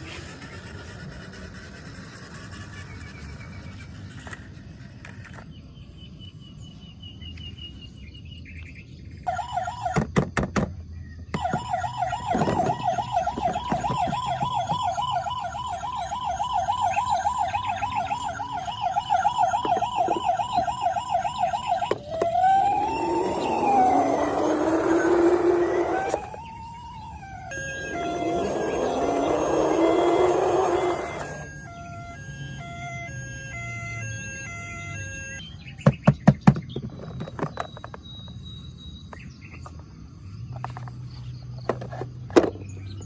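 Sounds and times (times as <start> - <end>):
electronic toy siren: 9.3 - 10.1, 11.3 - 35.5.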